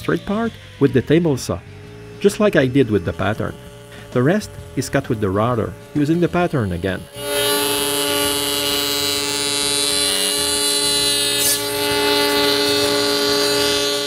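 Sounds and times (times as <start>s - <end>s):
electric wood router whining: 0.0s - 14.0s.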